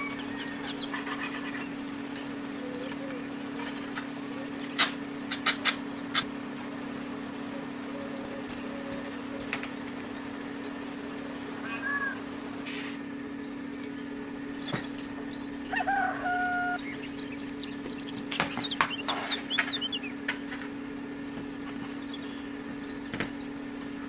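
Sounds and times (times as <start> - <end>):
steady low hum: 0.0 - 24.0
bird held call: 11.6 - 12.2, 15.0 - 20.2
quick high bird chirps: 16.7 - 20.1.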